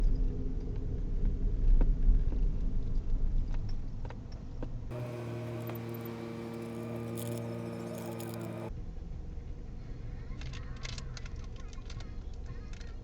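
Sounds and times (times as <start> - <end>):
car engine and road rumble: 4.9 - 8.7.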